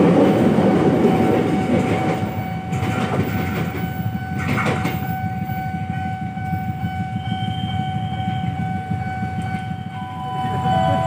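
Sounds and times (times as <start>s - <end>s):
train rumbling past: 0.0s - 11.0s
steady high tone: 5.1s - 11.0s.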